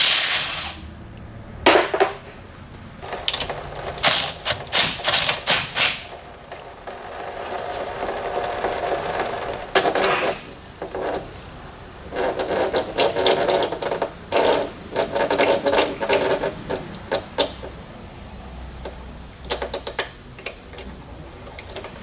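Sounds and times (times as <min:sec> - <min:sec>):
power ratchet buzzing: 0:00.0 - 0:00.9, 0:03.0 - 0:10.2.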